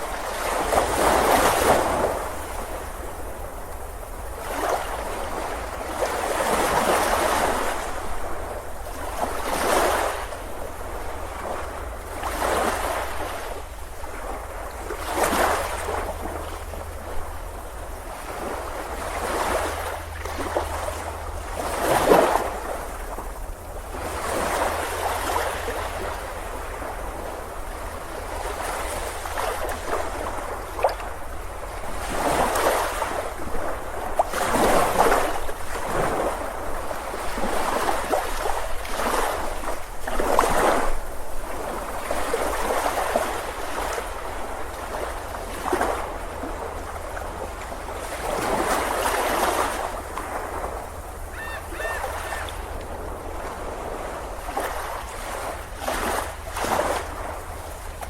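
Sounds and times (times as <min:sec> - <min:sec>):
ocean surf breaking: 0:31.8 - 0:58.0.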